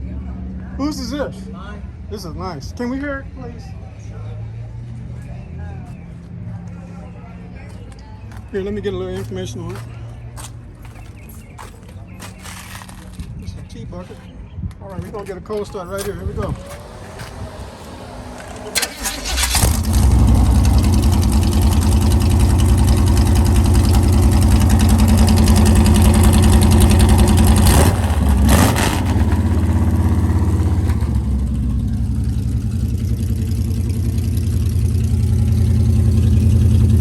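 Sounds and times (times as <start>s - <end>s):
car engine cranking and idling: 14.8s - 37.0s.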